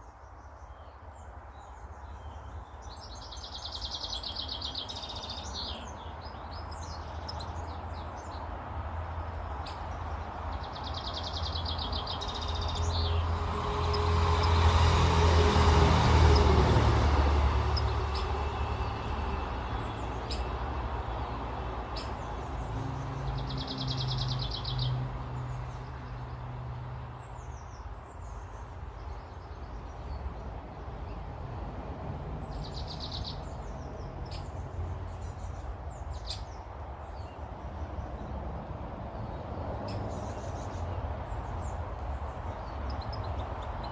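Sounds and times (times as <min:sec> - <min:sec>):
small birds chirping and singing: 0:00.0 - 0:26.4, 0:32.4 - 0:38.5, 0:39.1 - 0:43.9
vehicle passing: 0:04.1 - 0:27.5, 0:29.9 - 0:35.8.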